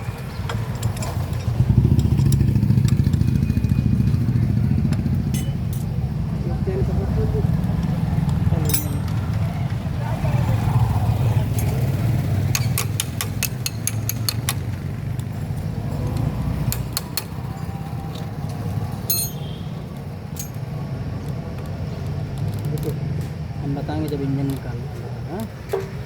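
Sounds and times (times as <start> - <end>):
metal tools clinking on engine parts: 0.0 - 6.2, 7.7 - 9.7, 11.4 - 26.0.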